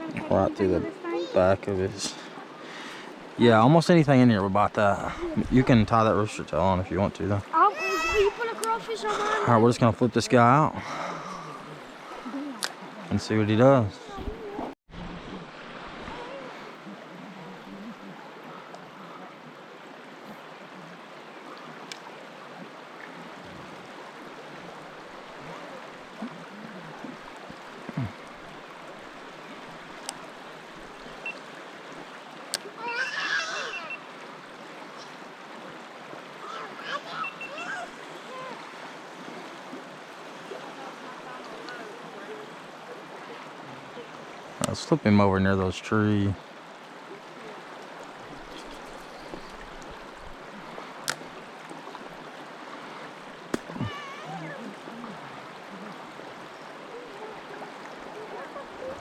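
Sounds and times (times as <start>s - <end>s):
creek water running: 0.0s - 59.0s
high-pitched vocal sound: 7.6s - 9.5s.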